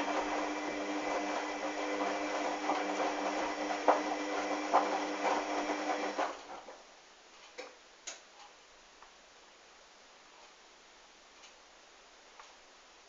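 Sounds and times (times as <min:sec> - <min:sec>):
washing machine motor hum: 0:00.0 - 0:06.7.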